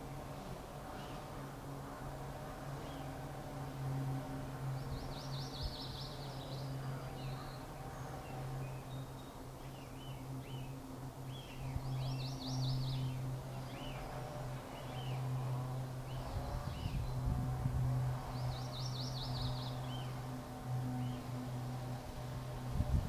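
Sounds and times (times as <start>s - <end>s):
songbirds singing: 0.0s - 1.5s, 2.4s - 23.0s
steady low hum: 0.0s - 23.0s.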